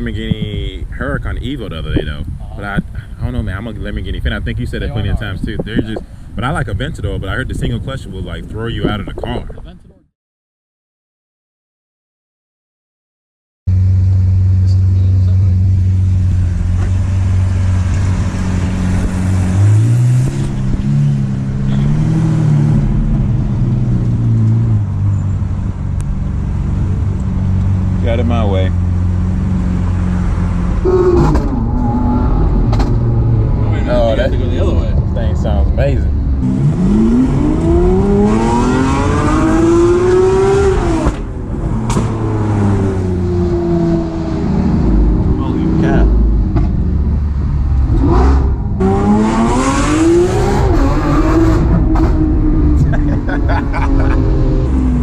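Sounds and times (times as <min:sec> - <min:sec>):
road and wind noise: 0:00.0 - 0:10.0, 0:13.7 - 0:55.0
sports car engine revving: 0:13.7 - 0:55.0.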